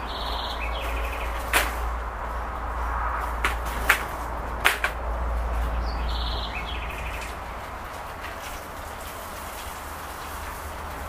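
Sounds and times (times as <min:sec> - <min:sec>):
songbird trill: 0:00.0 - 0:02.5, 0:05.5 - 0:08.5
low hum: 0:00.0 - 0:08.7.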